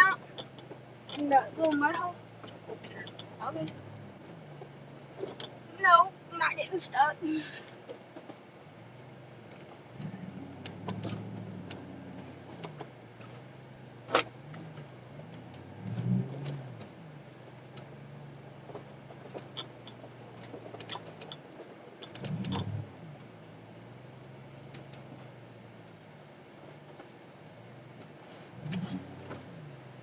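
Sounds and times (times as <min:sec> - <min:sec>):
small ticks and rattles: 0:00.0 - 0:05.8, 0:16.4 - 0:23.4
vehicle engine idling and revving: 0:00.0 - 0:30.0.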